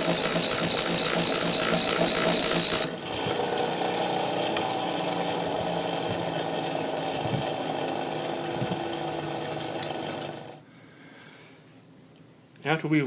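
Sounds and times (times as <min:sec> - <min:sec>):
sharpening machine humming: 0:00.0 - 0:08.3.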